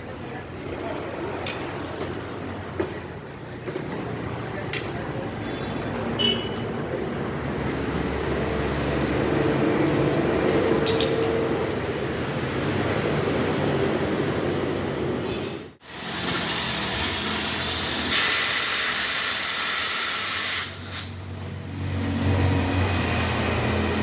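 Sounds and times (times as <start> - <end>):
loud spraying hiss: 15.8 - 24.0.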